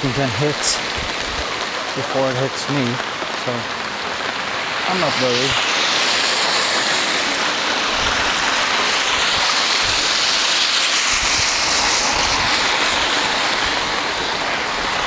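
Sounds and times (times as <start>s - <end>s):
heavy downpour hissing: 0.0s - 15.0s
wind thumps on microphone: 0.8s - 1.6s, 7.9s - 8.5s, 11.1s - 12.7s.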